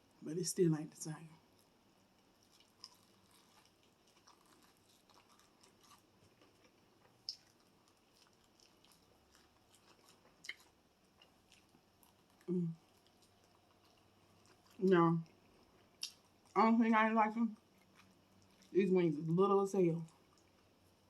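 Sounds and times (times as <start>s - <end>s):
person chewing chicken wings: 2.2s - 16.6s, 17.6s - 18.8s.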